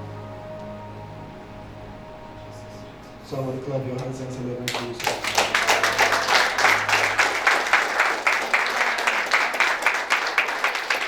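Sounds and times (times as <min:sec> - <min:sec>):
congregation clapping: 0:04.0 - 0:11.0.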